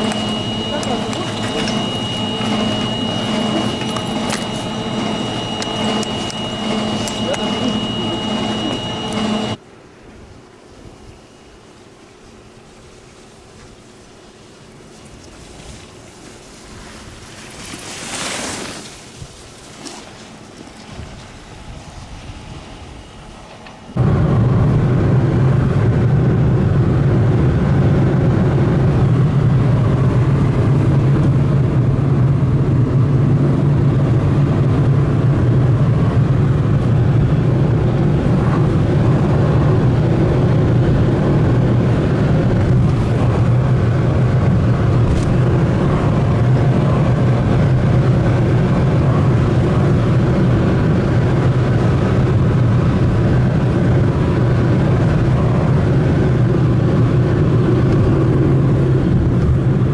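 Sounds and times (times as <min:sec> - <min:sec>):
vehicle engine running steadily: 0:00.0 - 0:09.6, 0:22.4 - 0:59.9.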